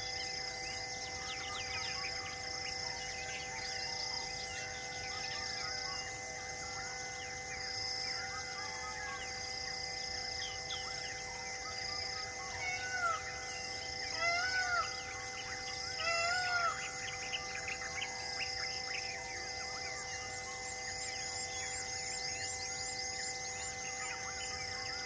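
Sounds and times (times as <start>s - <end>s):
loud arching bird calls: 12.1s - 19.1s
birds chirping: 14.1s - 19.2s.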